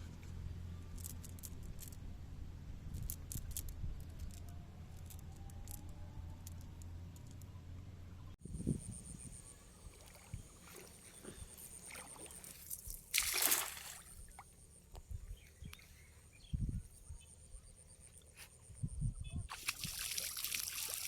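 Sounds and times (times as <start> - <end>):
water sloshing and splashing: 9.8 - 14.6, 19.5 - 21.0.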